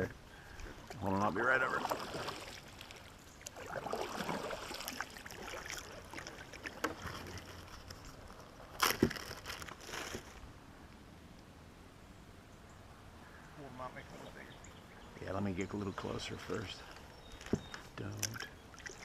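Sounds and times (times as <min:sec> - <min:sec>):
paddle splashing in water: 0:00.6 - 0:10.2, 0:17.4 - 0:19.0.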